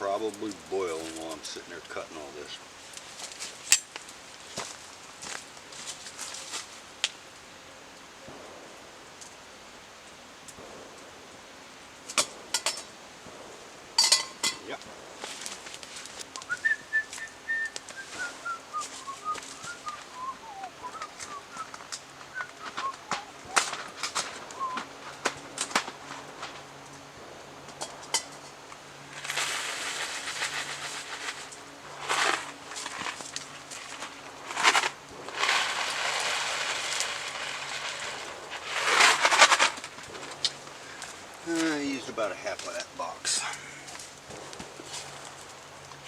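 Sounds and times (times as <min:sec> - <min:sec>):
person whistling: 0:16.4 - 0:21.7, 0:24.6 - 0:24.8
dry noodles rattling in cardboard box: 0:29.1 - 0:40.6.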